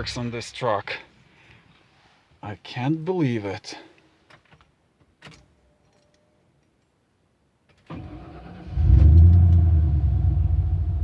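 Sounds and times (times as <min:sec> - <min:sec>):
starter motor cranking engine: 0:07.9 - 0:09.7.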